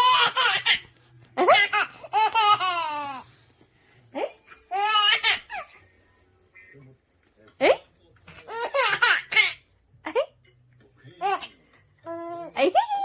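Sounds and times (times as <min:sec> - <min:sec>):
baby laughing: 0:00.0 - 0:03.2, 0:04.7 - 0:05.7, 0:08.5 - 0:09.6.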